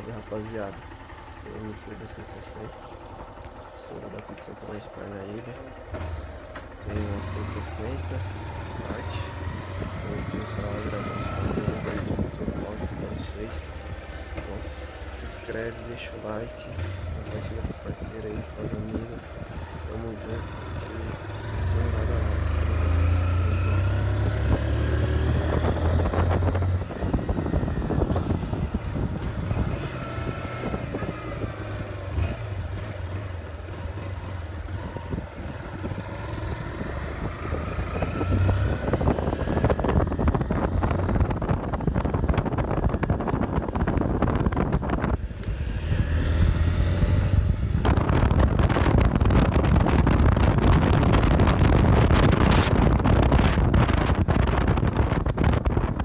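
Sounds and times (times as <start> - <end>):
motorcycle engine accelerating: 0.0 - 56.0
wind buffeting microphone: 8.6 - 14.8, 24.0 - 32.8, 34.4 - 56.0.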